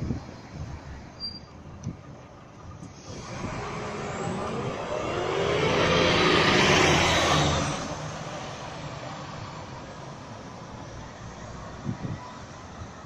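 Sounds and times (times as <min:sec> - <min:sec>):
tram passing by: 0:02.1 - 0:11.7
faint whine shifting in pitch: 0:03.0 - 0:08.0.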